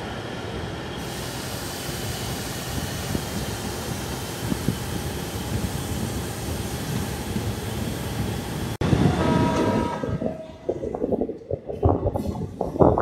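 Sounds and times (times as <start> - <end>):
rush of train wheels and wind: 0.0 - 13.0
uneven low clatter: 8.9 - 13.0.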